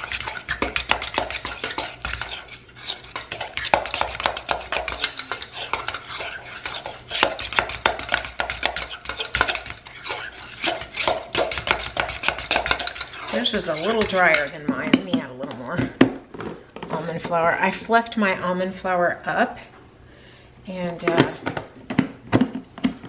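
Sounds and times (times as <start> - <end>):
fork clinking and scraping metal bowl: 0.0 - 14.6.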